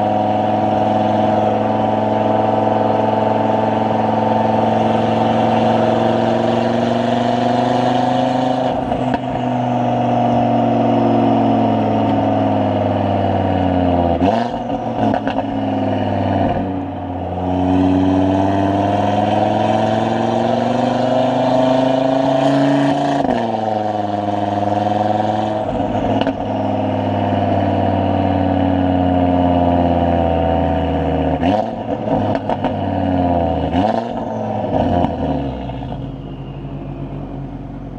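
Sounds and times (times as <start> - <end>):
car engine revving through gears: 0.0 - 37.9
exhaust cracks: 31.4 - 37.9.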